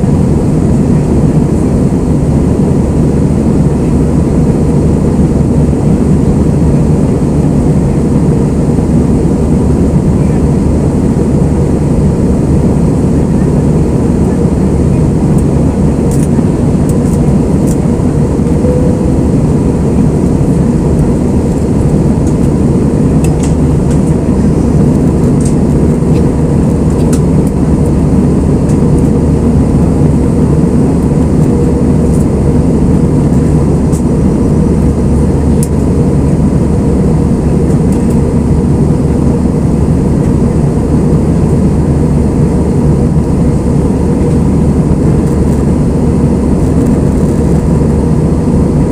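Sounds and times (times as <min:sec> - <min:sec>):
faint steady hum: 0:00.0 - 0:48.9
jet engines roaring: 0:00.0 - 0:48.9
rushing air: 0:10.8 - 0:37.8.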